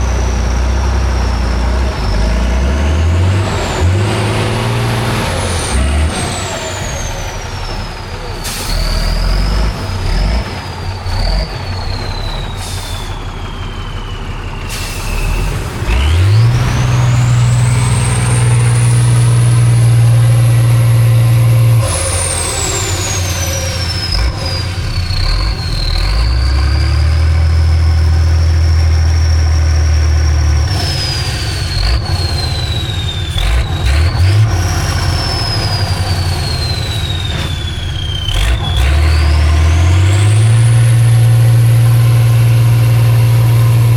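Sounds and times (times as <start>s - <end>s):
truck engine revving: 0.0s - 43.9s
high whistle: 11.7s - 16.2s, 29.0s - 41.9s.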